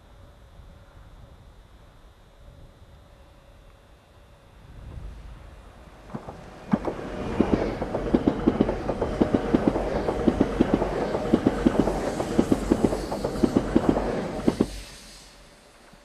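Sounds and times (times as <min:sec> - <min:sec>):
train rushing noise: 0:04.8 - 0:16.0
train wheels clicking over rail joints: 0:06.0 - 0:16.0.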